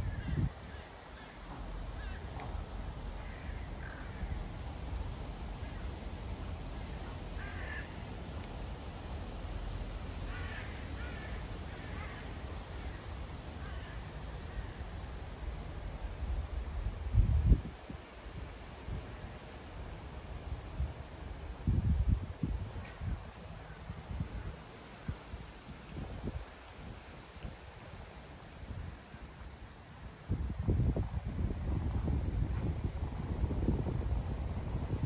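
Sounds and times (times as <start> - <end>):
wind rumble on microphone: 0.0 - 35.0
birds calling: 10.2 - 14.9.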